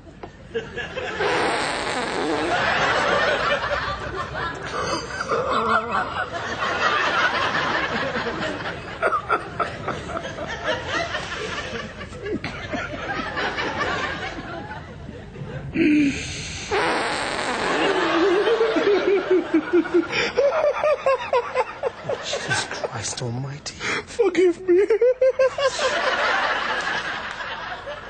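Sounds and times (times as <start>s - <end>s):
stifled snickering laughter: 2.2s - 14.7s, 17.5s - 22.9s.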